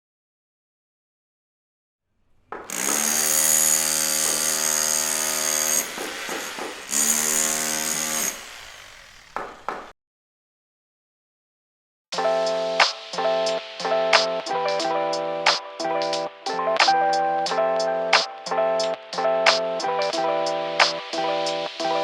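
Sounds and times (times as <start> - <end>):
power saw running: 2.6 - 9.7.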